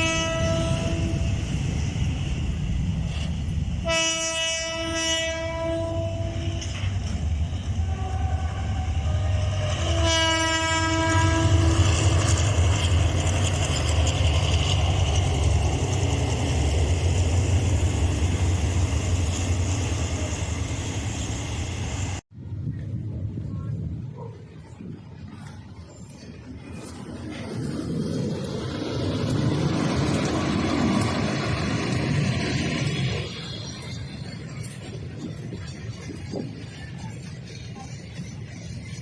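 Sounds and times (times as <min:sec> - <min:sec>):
train horn blast: 0:00.0 - 0:01.5, 0:03.8 - 0:07.0, 0:07.6 - 0:12.4
passing train rumble: 0:00.0 - 0:39.0
wind noise: 0:00.0 - 0:39.0.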